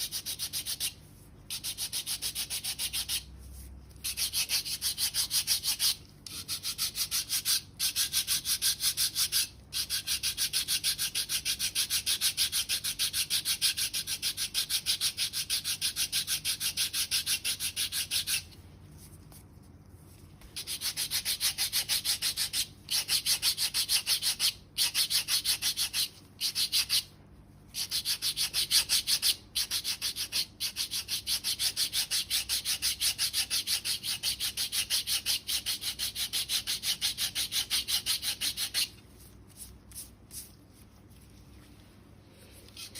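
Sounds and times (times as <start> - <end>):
foot file rasping on skin: 0.0 - 3.3, 4.0 - 18.5, 20.6 - 27.1, 27.8 - 39.0.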